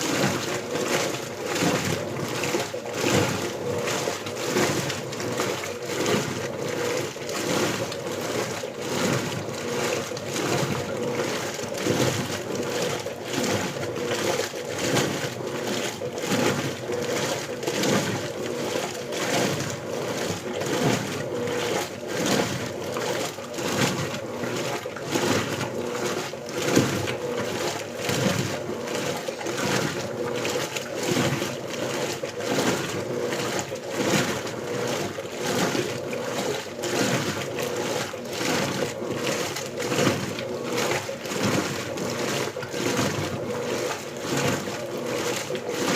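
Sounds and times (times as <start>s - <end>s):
washing machine water sloshing: 0.0s - 45.9s.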